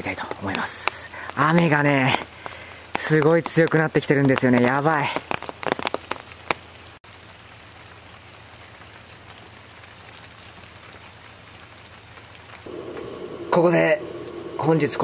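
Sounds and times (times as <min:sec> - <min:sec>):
heavy rain: 0:04.8 - 0:15.0.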